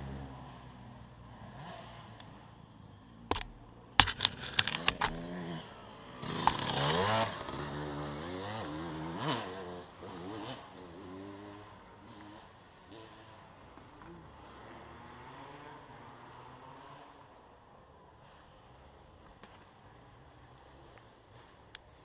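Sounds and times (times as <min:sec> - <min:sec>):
dirt bike engines revving: 0:00.0 - 0:22.0
sharp clicks or knocks: 0:03.3 - 0:05.3.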